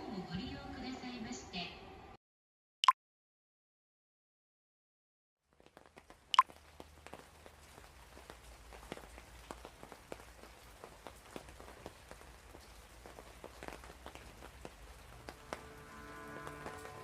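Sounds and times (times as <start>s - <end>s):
raindrops ticking on hard surface: 5.4s - 17.0s.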